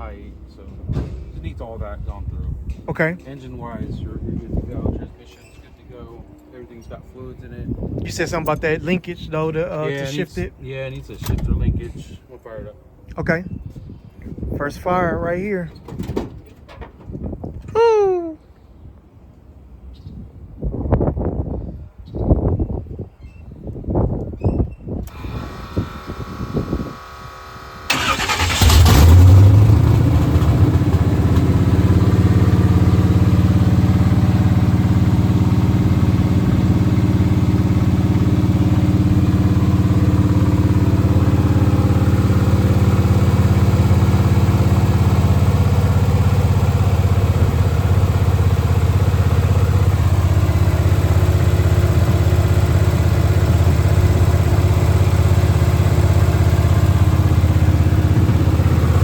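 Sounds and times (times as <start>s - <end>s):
car engine cranking and idling: 25.1s - 59.0s.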